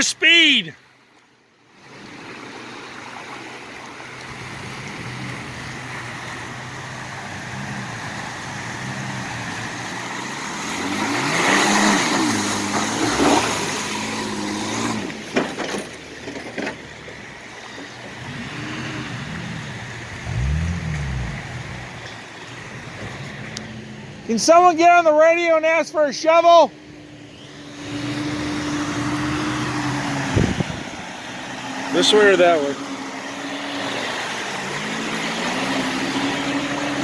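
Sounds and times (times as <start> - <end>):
off-road vehicle engine revving: 4.2 - 16.1, 17.9 - 24.3, 26.7 - 37.0
water splashing: 17.5 - 23.6.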